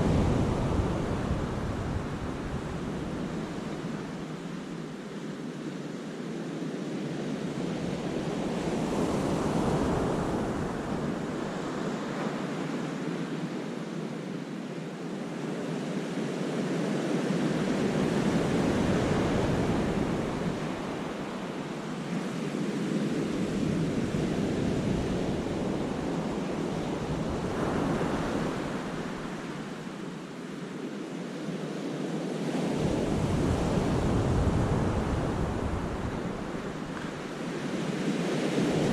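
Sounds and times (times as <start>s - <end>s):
wind rumbling on microphone: 0.0s - 5.0s, 7.0s - 12.3s, 17.2s - 30.0s, 32.4s - 38.9s.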